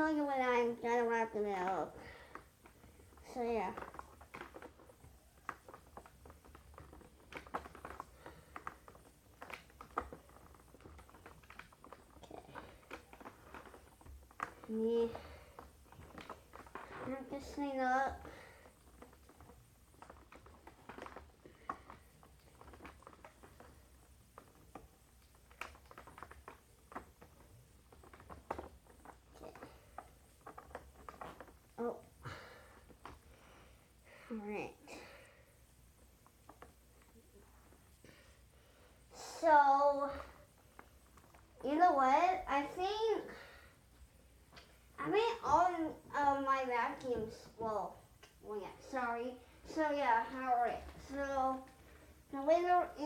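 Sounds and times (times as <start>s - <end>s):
faint handling clicks and rustles: 0.0s - 53.0s.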